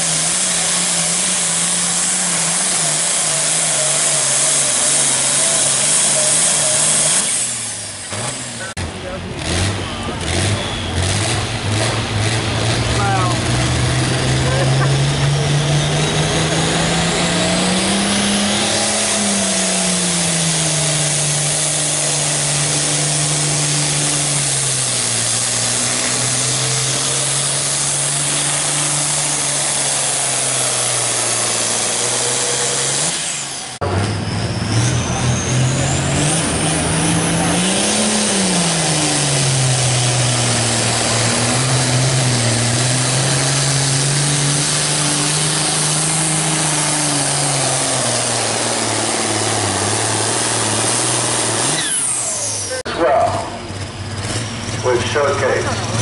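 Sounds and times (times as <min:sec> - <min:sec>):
tractor engine at full throttle: 0:00.0 - 0:56.0
high whistle: 0:10.5 - 0:11.1.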